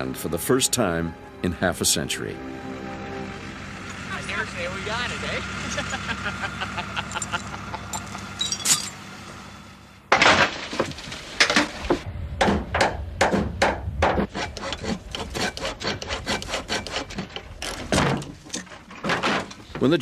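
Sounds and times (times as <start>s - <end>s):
faint engine hum: 0.0s - 10.1s.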